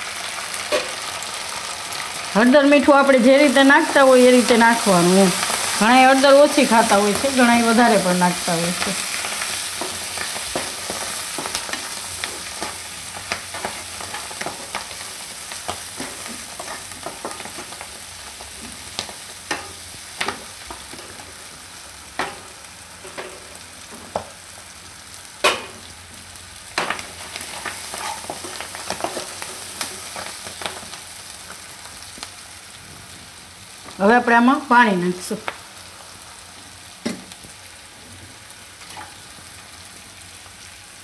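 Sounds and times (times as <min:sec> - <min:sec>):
leaves sizzling in oil: 0:00.0 - 0:41.0
spatula scraping a pan: 0:26.9 - 0:30.3.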